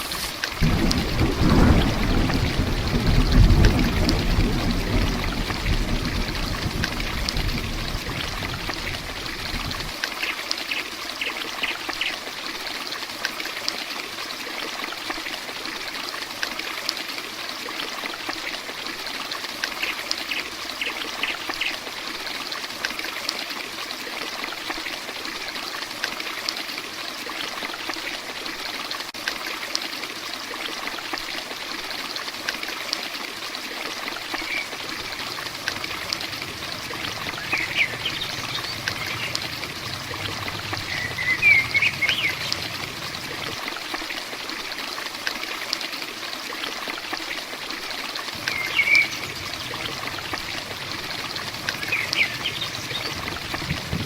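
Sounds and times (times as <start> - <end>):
heavy rain falling: 0.0 - 10.0, 34.1 - 44.0, 48.2 - 54.0
low rumble: 34.8 - 43.6.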